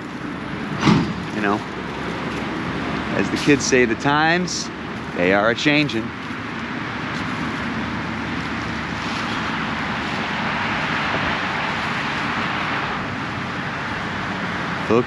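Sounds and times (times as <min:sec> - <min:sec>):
traffic rumble: 0:00.0 - 0:15.0
tyre noise hiss: 0:03.1 - 0:05.9.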